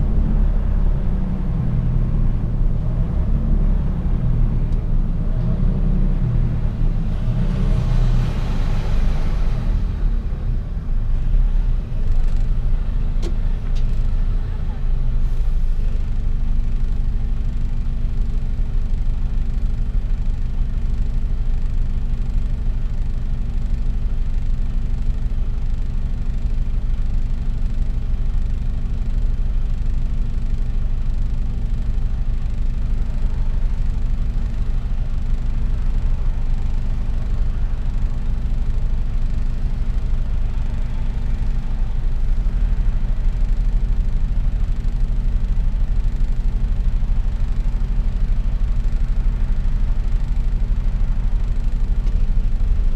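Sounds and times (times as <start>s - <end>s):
road noise: 0.0s - 17.9s, 32.2s - 52.9s
truck engine rumble: 0.0s - 21.7s, 28.2s - 52.9s.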